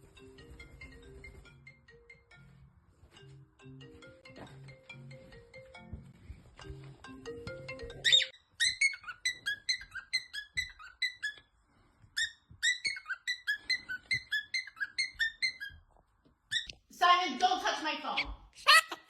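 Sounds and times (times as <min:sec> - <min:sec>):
ringtone-like melody: 0:00.0 - 0:08.4
parrot whistled chirps: 0:08.0 - 0:11.4, 0:12.2 - 0:15.8.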